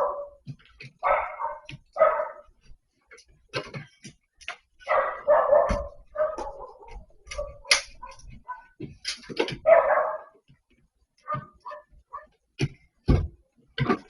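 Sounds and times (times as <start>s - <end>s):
dog barking: 0.0s - 0.4s, 1.0s - 2.5s, 4.8s - 8.8s, 9.6s - 10.4s, 11.2s - 12.4s.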